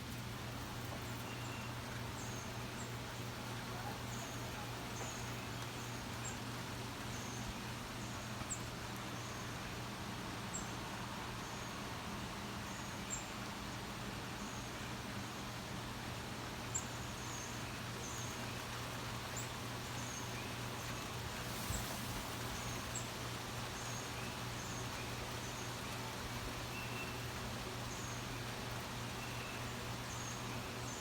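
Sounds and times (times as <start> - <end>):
even hiss: 19.2 - 28.2.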